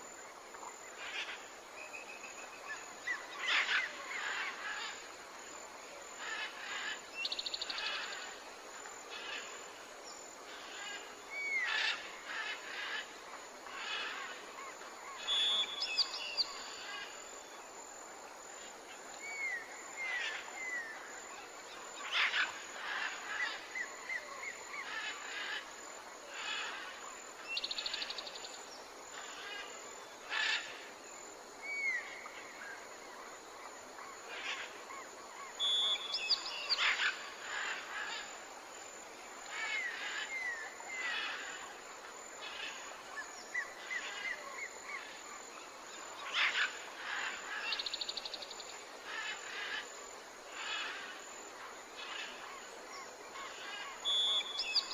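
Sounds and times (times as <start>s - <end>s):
background hiss: 0.0s - 54.9s
wild birds calling: 34.3s - 38.3s, 46.2s - 48.4s.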